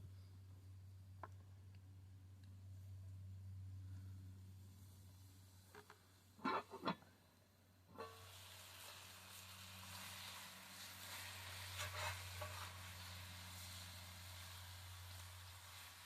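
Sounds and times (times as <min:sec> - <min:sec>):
sausages sizzling: 0:07.9 - 0:16.0.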